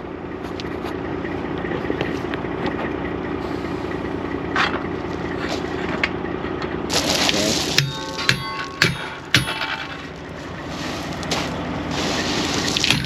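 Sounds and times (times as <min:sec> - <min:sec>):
diesel truck engine idling: 0:00.0 - 0:13.0
metallic knocks: 0:07.8 - 0:10.2.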